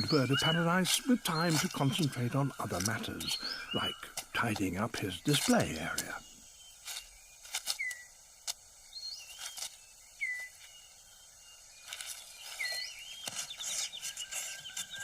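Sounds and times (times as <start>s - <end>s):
birds chirping: 0.0s - 15.0s
dry leaves rustling: 0.0s - 15.0s
bird whistles: 10.2s - 10.6s.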